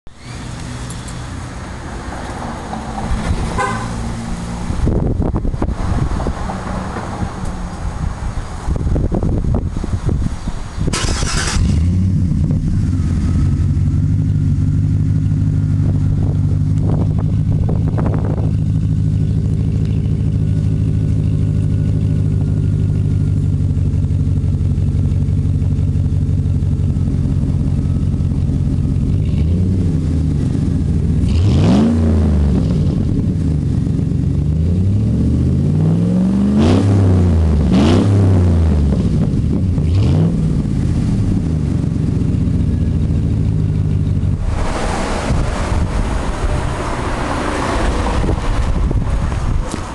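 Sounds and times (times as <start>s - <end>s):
truck engine starting and idling: 0.1s - 49.9s
engine revving: 10.9s - 23.2s, 27.2s - 49.9s.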